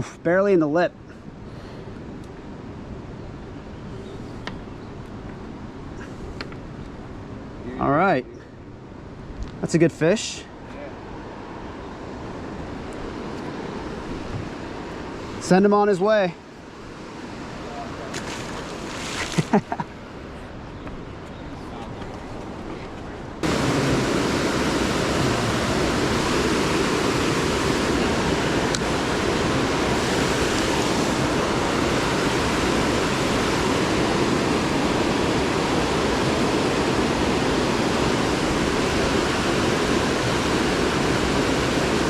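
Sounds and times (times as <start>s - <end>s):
rushing water: 11.0s - 20.0s, 23.4s - 42.0s.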